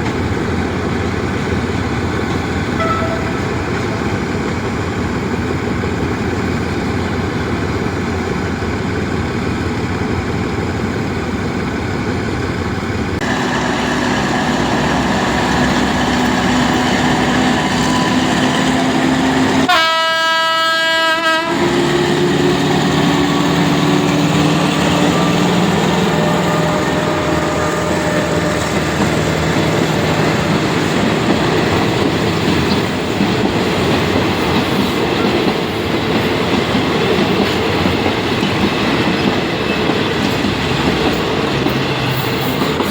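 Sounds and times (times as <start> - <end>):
train rumbling on rails: 0.0 - 42.9
train horn blast: 2.8 - 4.0, 13.2 - 21.9, 24.8 - 29.0.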